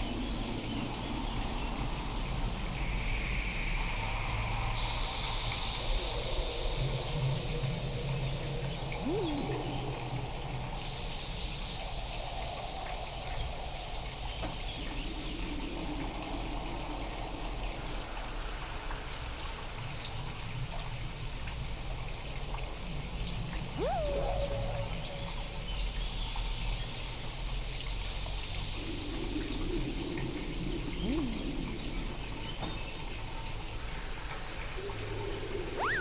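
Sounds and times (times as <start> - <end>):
processed steady rain: 0.0 - 35.8
chirp-like glide: 8.9 - 10.2, 23.7 - 25.8, 28.7 - 33.1, 34.8 - 36.0.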